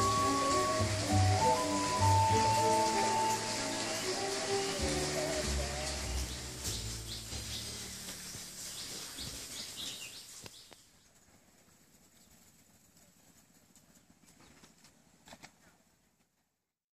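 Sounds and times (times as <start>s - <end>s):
birds chirping: 0.0s - 11.2s
faint hiss: 0.0s - 16.4s.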